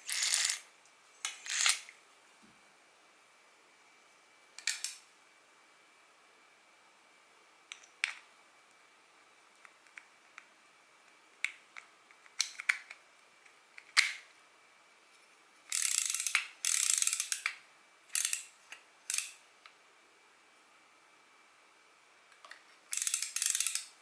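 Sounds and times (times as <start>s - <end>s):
fishing reel clicking: 15.7s - 17.4s, 18.2s - 18.4s, 22.9s - 23.9s
reel gear clicking: 22.9s - 23.9s.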